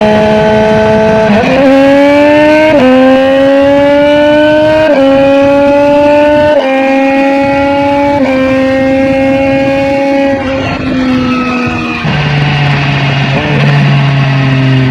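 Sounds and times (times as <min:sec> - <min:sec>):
motorcycle engine accelerating: 0:00.0 - 0:14.9.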